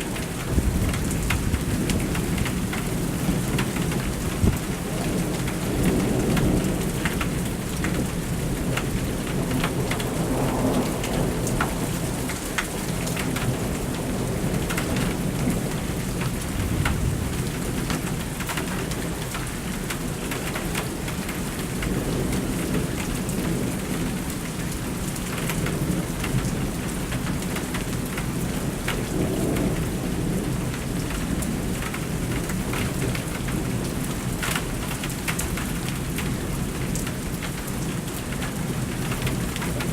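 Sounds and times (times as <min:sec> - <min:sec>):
heavy rain drumming: 0:00.0 - 0:39.9
rolling thunder: 0:00.4 - 0:12.4, 0:13.0 - 0:18.2.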